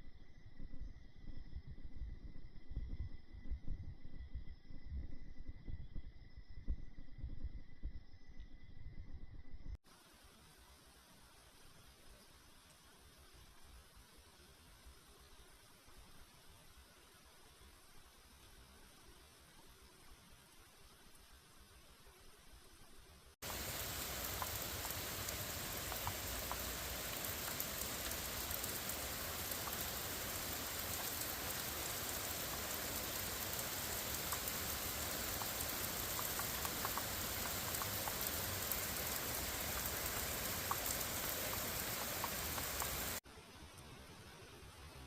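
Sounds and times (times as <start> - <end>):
steady rain falling: 9.8 - 45.0.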